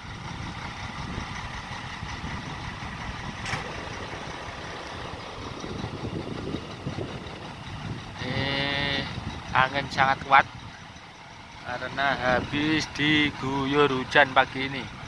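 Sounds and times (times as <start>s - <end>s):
diesel engine idling: 0.0s - 15.0s
wind buffeting microphone: 0.0s - 15.0s
sharp click: 3.4s - 3.8s.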